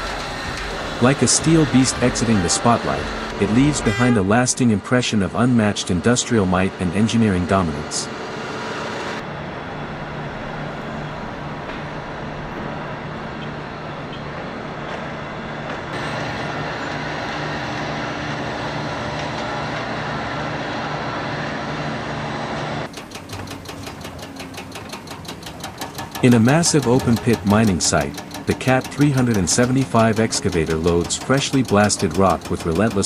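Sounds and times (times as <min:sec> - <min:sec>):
diesel machinery engine hum: 0:00.0 - 0:33.0
fast even clatter: 0:22.9 - 0:33.0.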